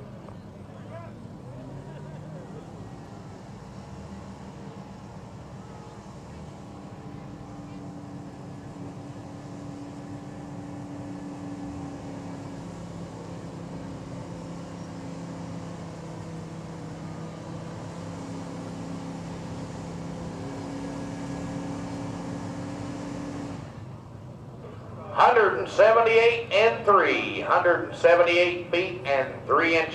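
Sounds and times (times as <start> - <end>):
truck engine running under load: 0.0 - 29.9.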